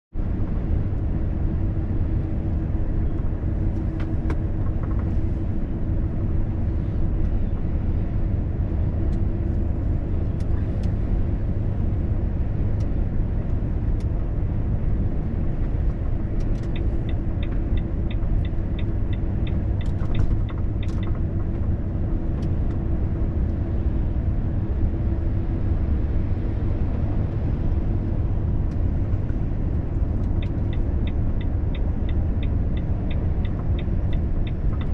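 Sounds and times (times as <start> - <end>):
truck engine and road noise: 0.1 - 34.9.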